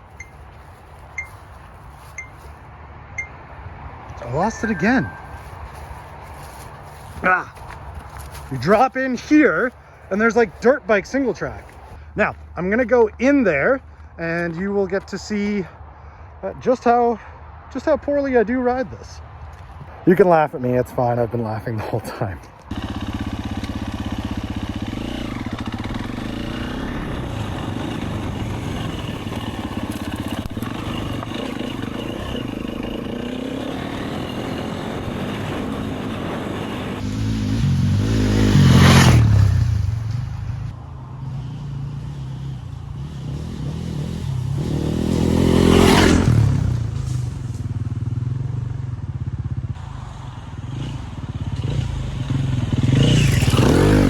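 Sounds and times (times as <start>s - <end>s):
dirt bike engine revving: 4.2s - 10.7s, 22.7s - 54.0s.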